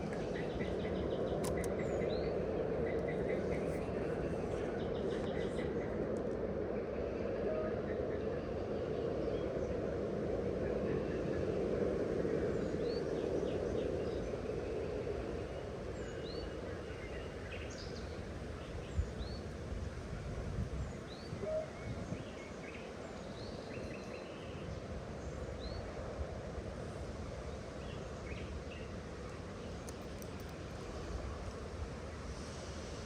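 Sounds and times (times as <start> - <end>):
outdoor background hiss: 12.6 - 33.0.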